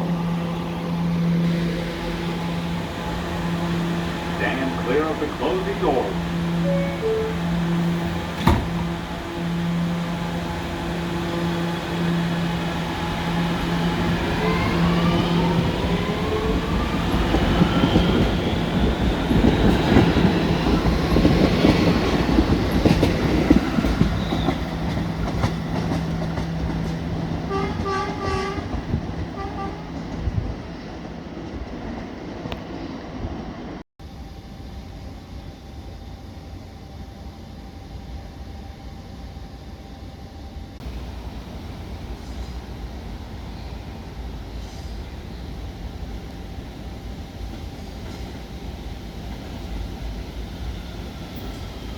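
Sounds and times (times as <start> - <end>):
electric train motors whining: 0.0 - 29.7
wheels rumbling on rails: 0.0 - 33.8, 40.8 - 51.9.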